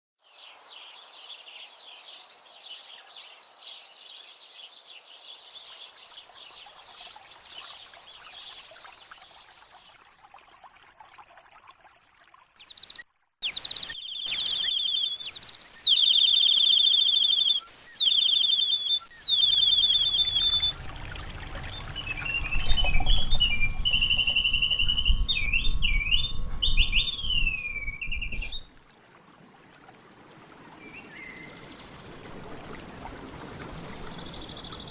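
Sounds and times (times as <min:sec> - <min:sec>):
small birds chirping: 0:00.2 - 0:09.8, 0:12.6 - 0:20.9
trilled bird calls: 0:12.6 - 0:28.7
whistled bird phrases: 0:12.8 - 0:21.0, 0:21.6 - 0:28.7
low rumble: 0:20.0 - 0:28.5.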